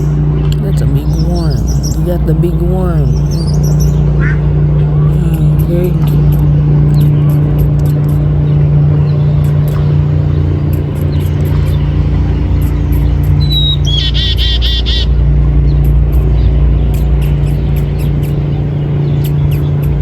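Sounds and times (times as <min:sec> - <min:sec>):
loud steady low hum: 0:00.0 - 0:20.0
small bird whistling and chirping: 0:13.0 - 0:15.1.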